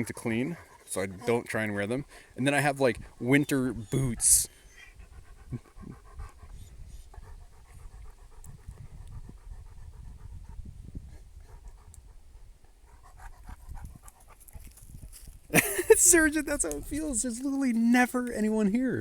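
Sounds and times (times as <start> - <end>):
dog panting: 0.0 - 15.2.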